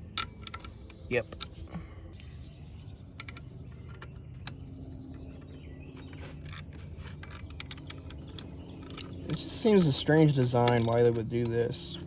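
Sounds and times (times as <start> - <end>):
low background rumble: 0.0 - 12.0
hand ratchet clicks: 6.5 - 11.7.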